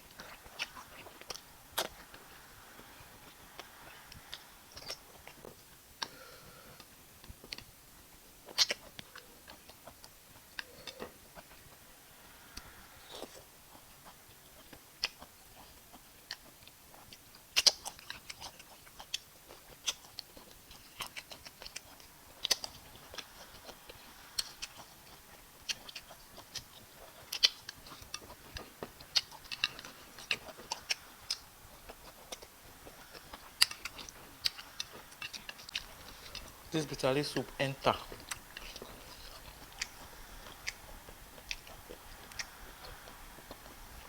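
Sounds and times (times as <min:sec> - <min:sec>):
chewing: 0:00.0 - 0:44.0.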